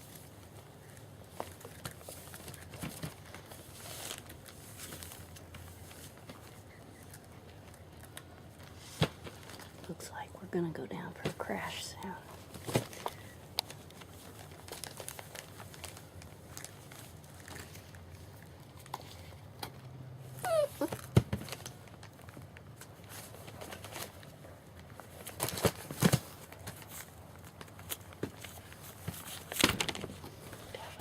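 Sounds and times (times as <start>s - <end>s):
puppy whimpering: 20.4s - 21.1s.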